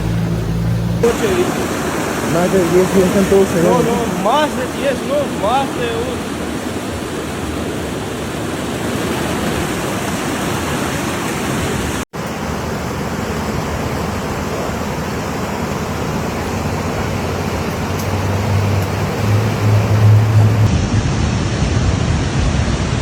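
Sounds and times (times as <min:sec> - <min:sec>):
low hum: 0:00.0 - 0:04.2, 0:12.2 - 0:23.0
floodwater rushing: 0:00.0 - 0:23.0.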